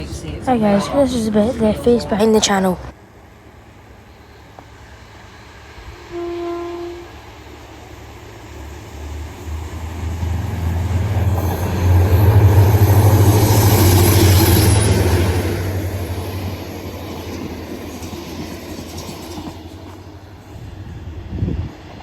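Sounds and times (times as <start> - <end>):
train rumble: 0.0 - 22.0
wheels hissing on rails: 0.0 - 22.0
train horn: 5.9 - 7.4.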